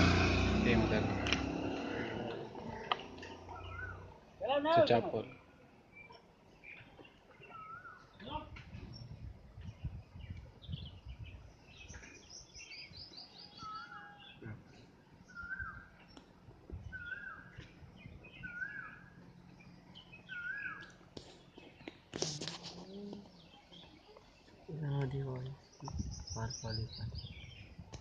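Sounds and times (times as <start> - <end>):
high bird chirps: 3.0 - 4.1, 6.0 - 8.4, 15.3 - 22.0.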